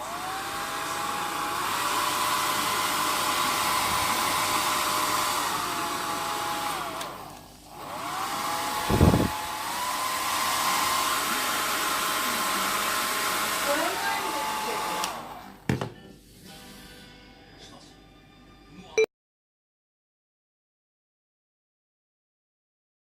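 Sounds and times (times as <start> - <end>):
hair dryer running: 0.0 - 15.7.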